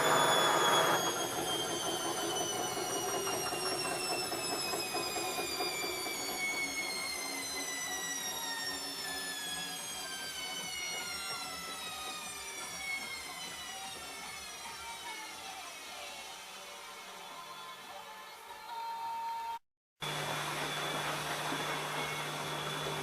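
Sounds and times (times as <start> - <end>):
washing machine drum whining: 0.0 - 14.0, 20.0 - 23.0.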